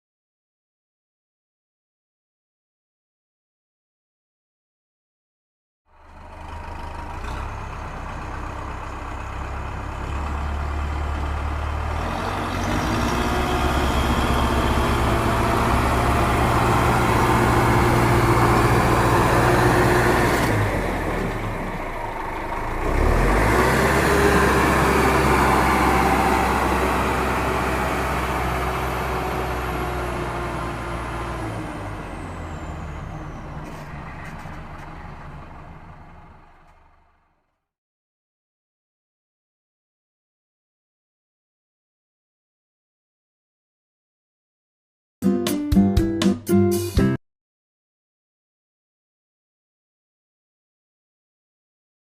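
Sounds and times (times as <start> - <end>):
tractor engine running: 5.9 - 37.6.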